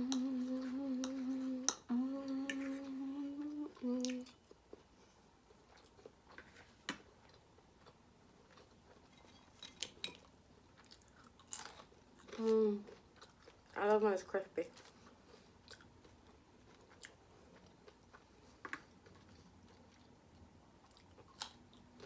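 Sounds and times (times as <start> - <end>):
woman humming: 0.0 - 4.4.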